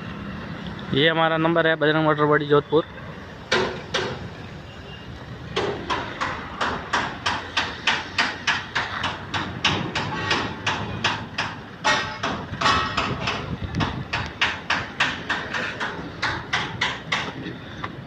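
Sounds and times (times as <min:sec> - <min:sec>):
rapid hammering: 0:05.6 - 0:17.4.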